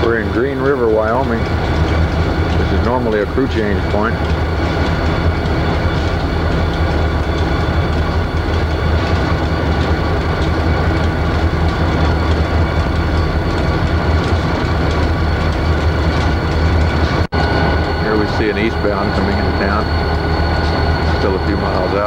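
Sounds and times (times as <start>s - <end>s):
freight train rumbling on track: 0.0s - 22.0s
low drone: 0.0s - 22.0s.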